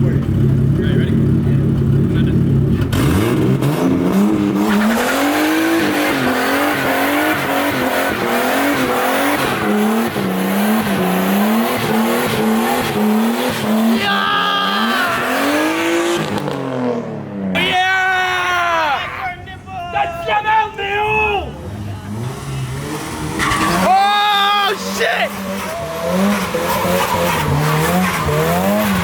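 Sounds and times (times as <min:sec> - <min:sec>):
car engine revving: 0:00.0 - 0:17.6, 0:21.5 - 0:29.0
tyre squeal: 0:23.3 - 0:29.0.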